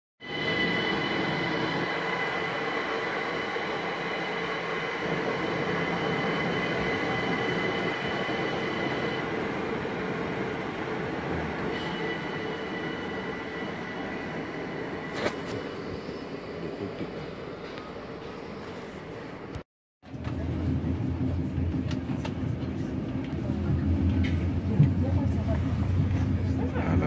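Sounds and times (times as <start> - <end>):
train running gear rumbling: 20.1 - 27.0.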